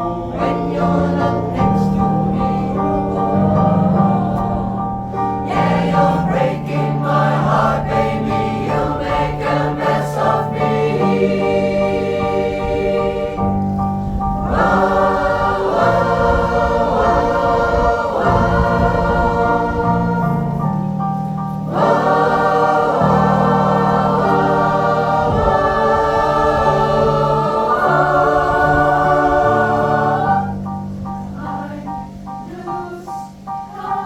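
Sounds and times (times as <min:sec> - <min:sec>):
choir singing held chords: 0:00.0 - 0:34.0.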